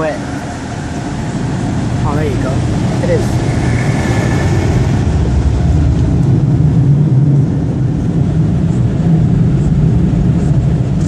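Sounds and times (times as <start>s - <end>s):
car wash air dryer blowing: 0.0s - 6.8s.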